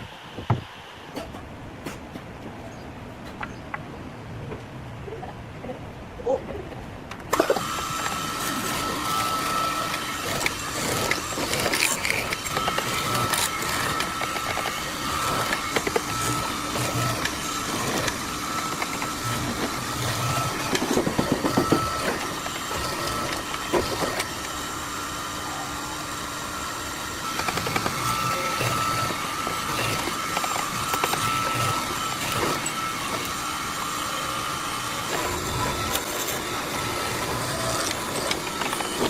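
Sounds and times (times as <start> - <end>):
machine motor whining: 7.3 - 39.0.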